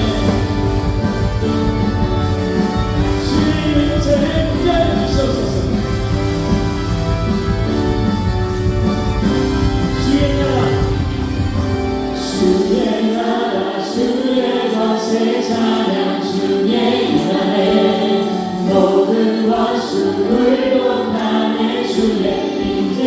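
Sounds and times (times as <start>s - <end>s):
voices singing: 0.0s - 6.6s, 11.8s - 23.0s
bass and drums: 0.0s - 12.1s
keyboard: 0.0s - 23.0s.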